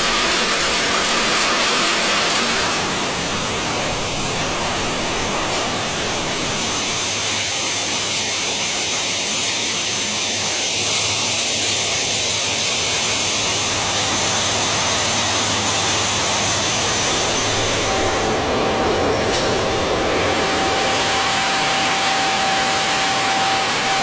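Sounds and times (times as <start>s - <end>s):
machinery rushing noise: 0.0s - 8.1s, 12.9s - 24.0s.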